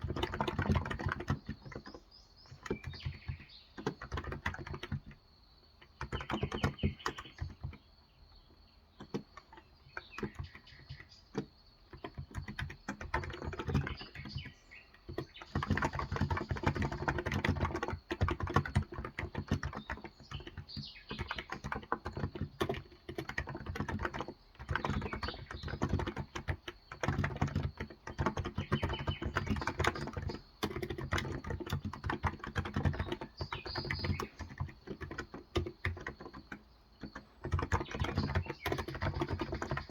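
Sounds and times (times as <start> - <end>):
typing on a keyboard: 0.0 - 39.9.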